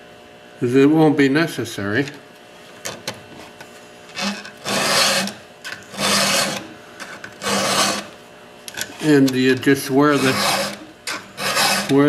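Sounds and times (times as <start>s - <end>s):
hand file rasping on chainsaw chain: 4.2s - 6.7s, 7.4s - 8.1s, 10.0s - 12.0s.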